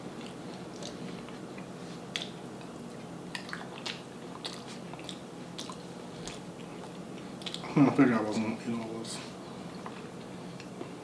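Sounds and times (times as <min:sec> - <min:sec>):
person chewing food: 0:00.0 - 0:07.7, 0:09.4 - 0:11.0
wet mouth clicks and smacks: 0:03.3 - 0:06.4, 0:07.4 - 0:07.7.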